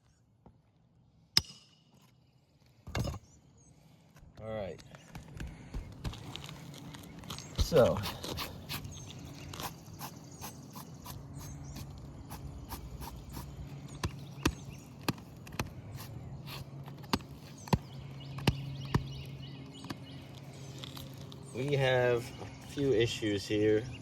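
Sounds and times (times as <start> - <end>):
steady low hum: 0.0 - 24.0
taps on shingle roof: 4.2 - 10.6, 11.8 - 21.4.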